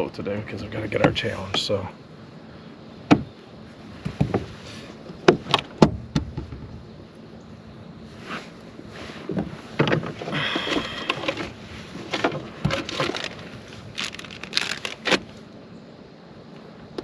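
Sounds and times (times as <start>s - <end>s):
short raspy scrape: 8.1s - 12.2s.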